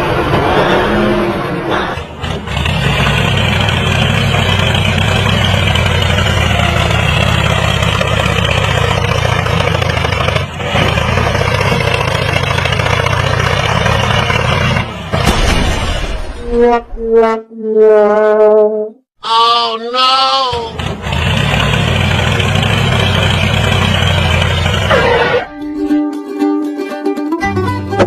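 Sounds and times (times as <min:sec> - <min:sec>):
engine running: 0:00.0 - 0:15.5, 0:20.3 - 0:28.0.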